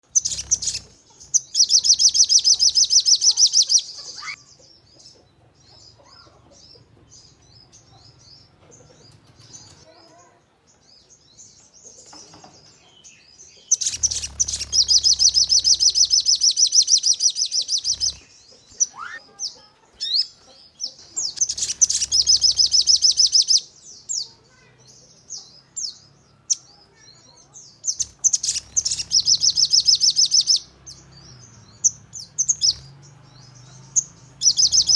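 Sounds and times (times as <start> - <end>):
bird rattling trills: 0.0 - 4.4, 13.7 - 19.2, 21.3 - 23.6, 27.9 - 30.6
bird short chirps: 0.0 - 4.4, 13.7 - 19.2, 21.2 - 24.2, 27.9 - 31.0.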